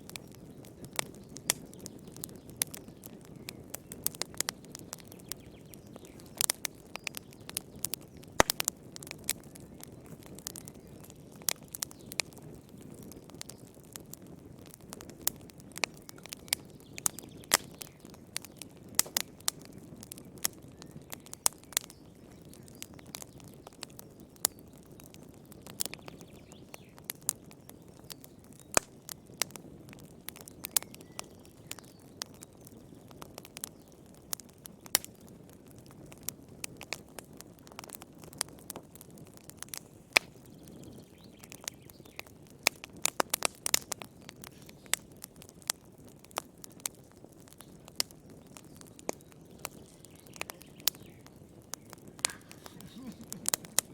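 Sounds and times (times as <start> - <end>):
fire crackling and popping: 0.0 - 53.9
soft rush of flames: 42.6 - 53.9.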